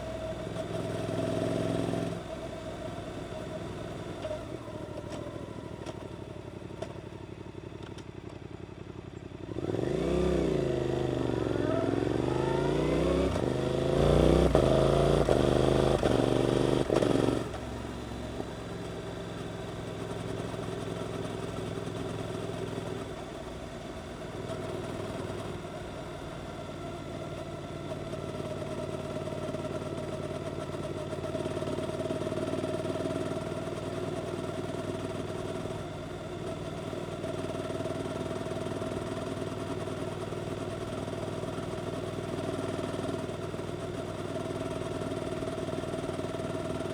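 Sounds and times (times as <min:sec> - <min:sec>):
motorcycle engine accelerating: 0:09.4 - 0:46.9.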